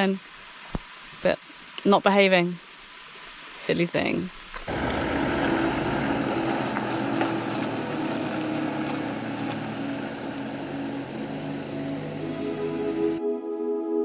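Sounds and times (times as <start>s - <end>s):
drone propellers whining: 4.7s - 13.2s.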